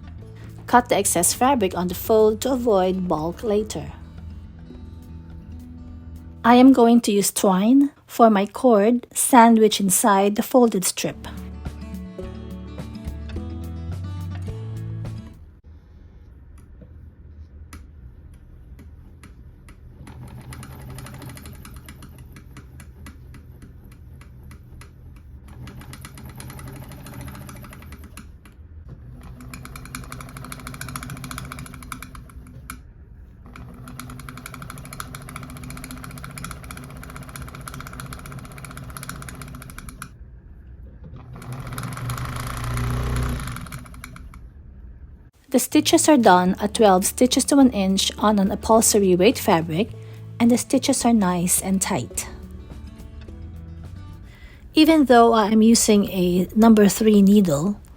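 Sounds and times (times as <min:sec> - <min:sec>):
sewing machine stitching rattle: 0:20.0 - 0:28.4, 0:29.1 - 0:32.8, 0:33.4 - 0:40.1, 0:41.2 - 0:44.4.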